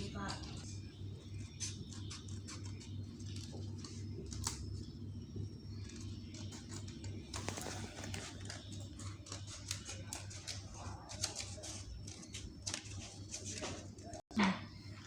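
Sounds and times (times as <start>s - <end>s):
steady low hum: 0.0s - 15.0s
scratching on cardboard: 1.3s - 4.5s, 5.8s - 14.2s.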